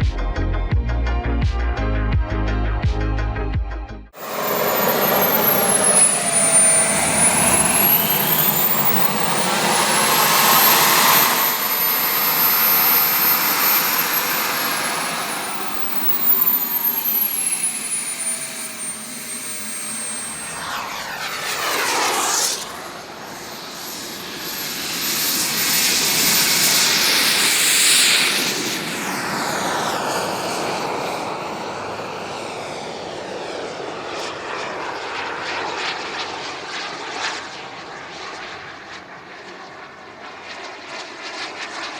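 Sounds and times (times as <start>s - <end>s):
jet engines whining past: 4.2s - 41.9s.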